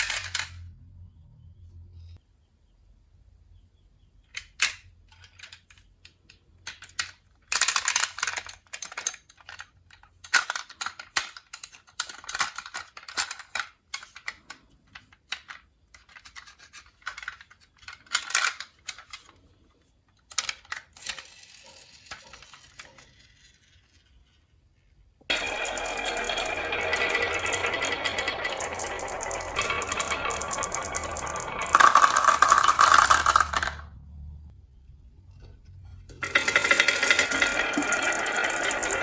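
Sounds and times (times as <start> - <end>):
marbles clattering on wooden track: 0.0 - 0.6, 6.7 - 14.2, 20.3 - 24.2, 25.3 - 34.0, 36.1 - 39.0
marbles rolling: 25.3 - 34.0, 36.2 - 39.0.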